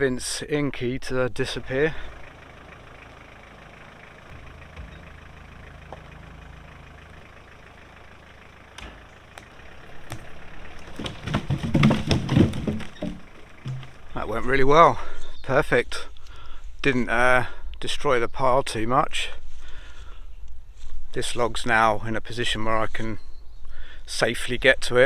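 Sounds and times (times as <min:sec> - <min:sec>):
pickup truck engine running: 0:00.8 - 0:15.5
log falling with wooden knocks: 0:01.6 - 0:14.4.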